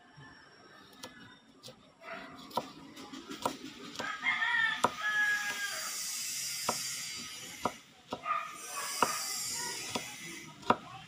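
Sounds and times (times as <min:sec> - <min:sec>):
knife chopping on wooden board: 0:02.4 - 0:04.1, 0:06.6 - 0:07.0, 0:07.6 - 0:10.9
rooster crowing: 0:03.9 - 0:06.0.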